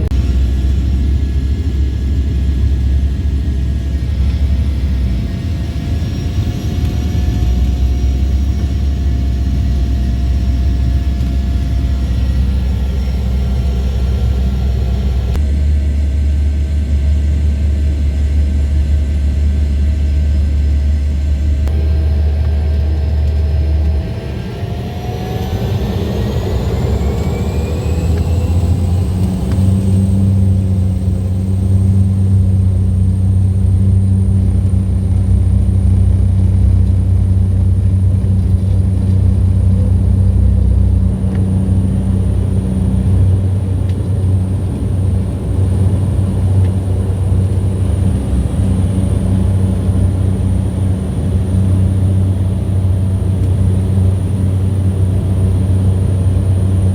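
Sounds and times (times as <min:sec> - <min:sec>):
motor drone: 0:00.0 - 0:56.9
faint high whine: 0:19.7 - 0:56.9.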